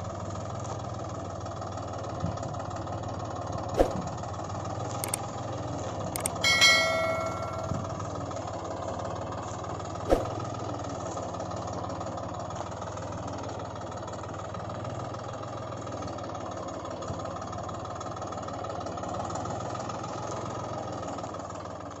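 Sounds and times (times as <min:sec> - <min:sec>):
engine idling: 0:00.0 - 0:22.0
sharp click: 0:05.0 - 0:05.2, 0:06.2 - 0:07.8
metallic bell-like ring: 0:06.2 - 0:08.0.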